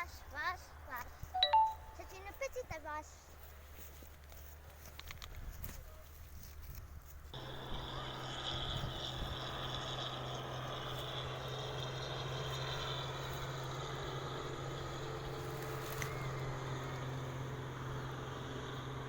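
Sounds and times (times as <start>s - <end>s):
motor humming and whining: 7.4s - 19.0s.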